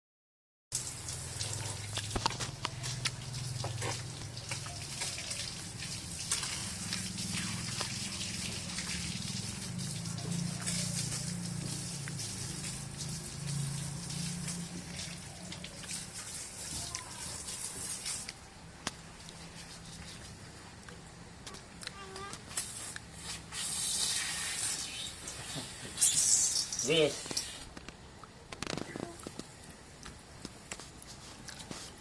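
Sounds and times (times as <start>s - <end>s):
hose water spraying and splashing: 0.7s - 20.8s, 22.2s - 27.8s
water dripping: 0.7s - 21.8s.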